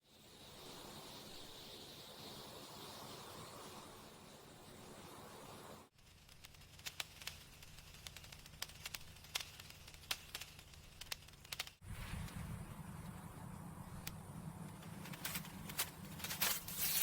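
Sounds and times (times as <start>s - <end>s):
faint crackles and clicks: 5.9s - 17.0s
low rumble: 11.8s - 16.3s
low steady hum: 11.8s - 17.0s.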